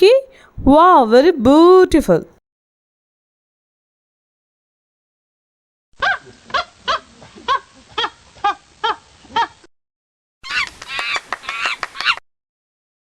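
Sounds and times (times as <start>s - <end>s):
monkey hoots: 6.0s - 9.7s, 10.4s - 12.2s.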